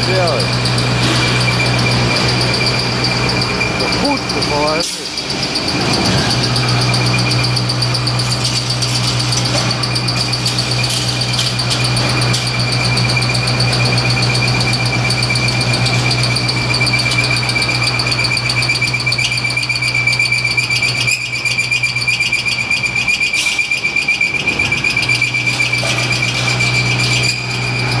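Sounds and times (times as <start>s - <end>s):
high-pitched machine whine: 0.0s - 28.0s
machine low hum: 0.0s - 28.0s
clicks and rattles: 7.9s - 17.9s.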